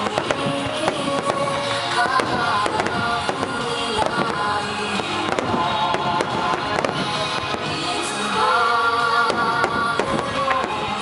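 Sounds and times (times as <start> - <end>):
fireworks bursting and crackling: 0.0 - 11.0
music with held notes: 0.0 - 11.0.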